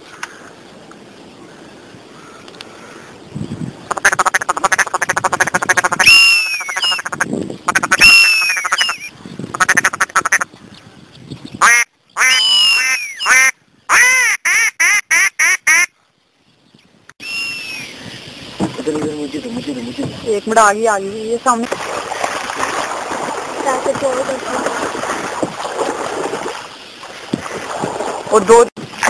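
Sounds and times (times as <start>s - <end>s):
ducks quacking: 3.9s - 10.5s.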